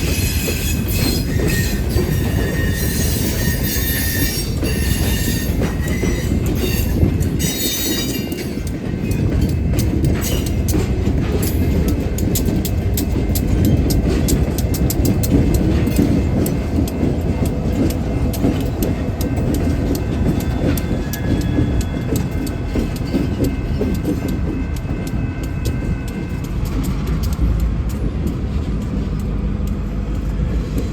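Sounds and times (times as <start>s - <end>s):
high wheel squeal: 0.0s - 8.4s
railroad cars rumbling past: 0.0s - 30.9s
wheels clicking over rail joints: 0.0s - 30.9s.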